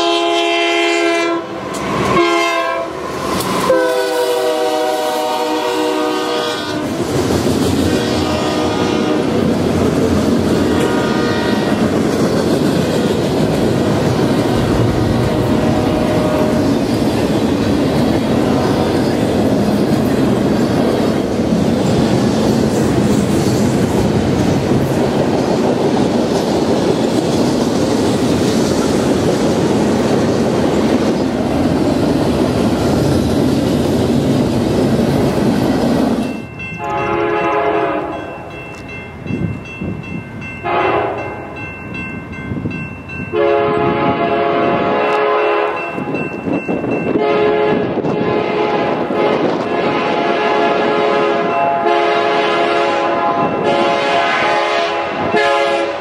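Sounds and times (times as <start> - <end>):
distant locomotive air horn: 0.0 - 7.0, 7.9 - 9.4, 10.7 - 11.8, 15.2 - 16.8, 36.8 - 38.3, 40.6 - 41.3, 43.4 - 45.8, 47.2 - 56.0
train cars rumbling and rattling: 0.0 - 56.0.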